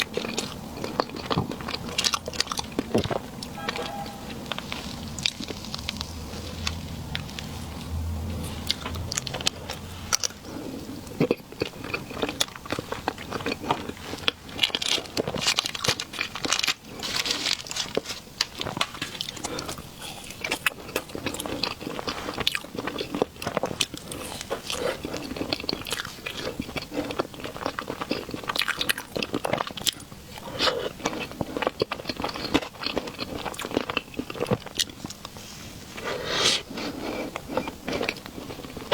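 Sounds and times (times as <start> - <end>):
chewing soft cake: 0.0 - 38.9.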